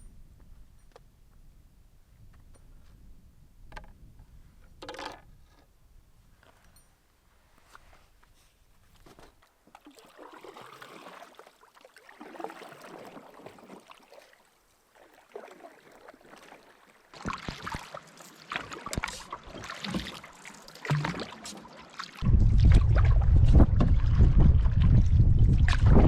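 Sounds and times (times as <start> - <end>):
paddle strokes swishing through water: 7.6 - 26.0
sharp knocks and splashy clicks: 17.2 - 26.0.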